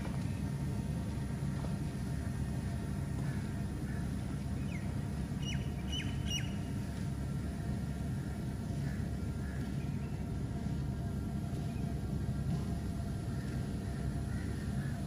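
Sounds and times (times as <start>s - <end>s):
low outdoor rumble: 0.0s - 15.0s
sharp bird calls: 5.4s - 6.7s.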